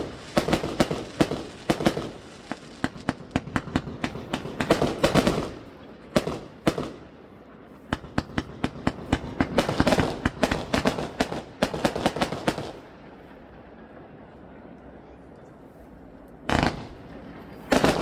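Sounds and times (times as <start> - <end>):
fireworks cracking and banging: 0.0 - 13.9, 16.5 - 18.0.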